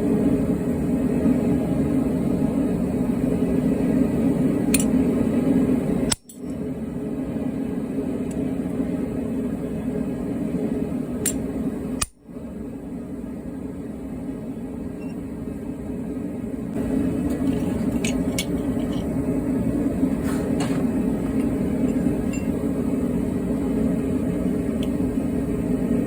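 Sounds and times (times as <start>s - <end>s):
low mechanical roar: 0.0s - 26.0s.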